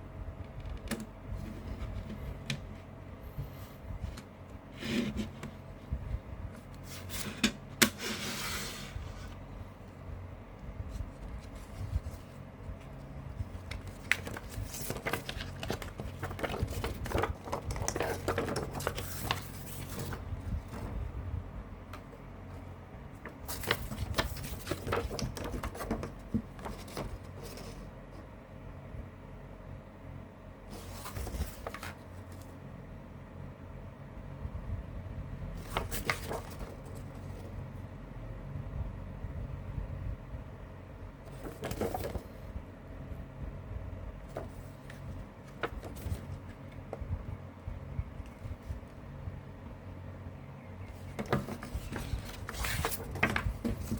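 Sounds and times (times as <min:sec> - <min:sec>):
low steady hum: 0:00.0 - 0:53.9
cd case rustling and clicking: 0:13.6 - 0:21.0, 0:23.2 - 0:27.3, 0:51.0 - 0:53.9.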